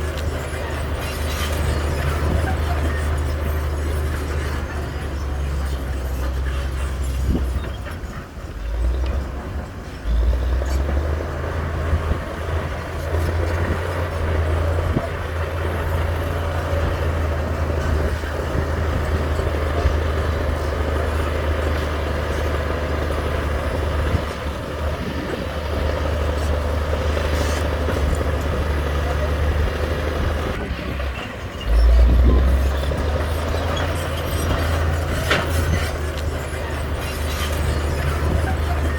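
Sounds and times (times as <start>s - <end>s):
heavy diesel engine humming: 0.0s - 38.9s.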